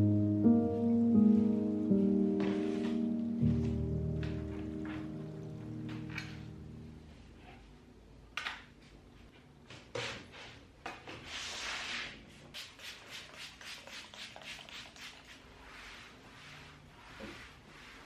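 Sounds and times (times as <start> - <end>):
scrubbing strokes: 11.3 - 18.0.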